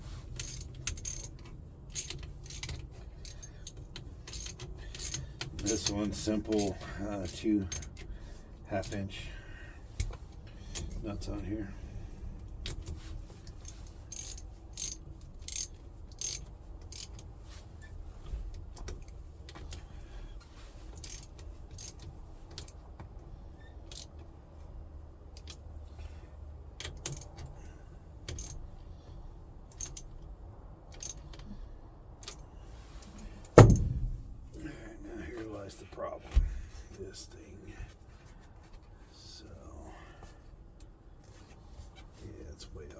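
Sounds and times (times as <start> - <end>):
hand tool clicking on metal nuts: 1.9 - 6.8, 13.6 - 17.2
heavy thump: 33.6 - 34.6.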